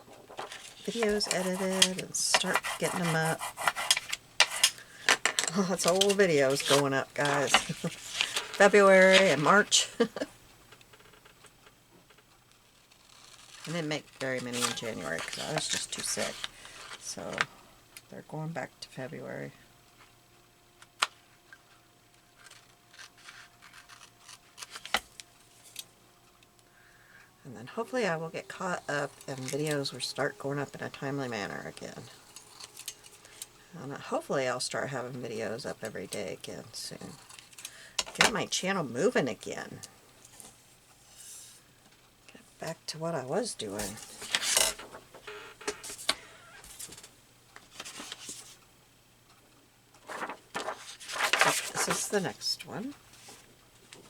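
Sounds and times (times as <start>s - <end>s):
paper rustling: 0.0s - 10.2s, 13.0s - 17.5s, 22.4s - 25.8s, 43.6s - 48.6s, 50.0s - 54.0s
scissors snipping paper: 0.4s - 4.8s, 5.6s - 9.4s, 22.5s - 25.0s.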